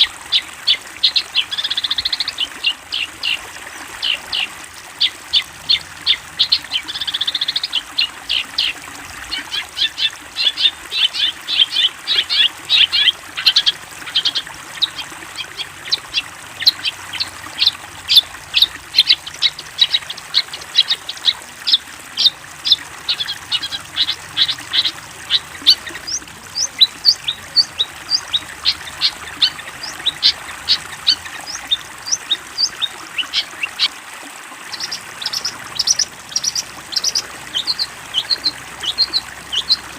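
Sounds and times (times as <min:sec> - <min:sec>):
songbird calling in sharp notes: 0:00.0 - 0:33.9, 0:34.7 - 0:39.9.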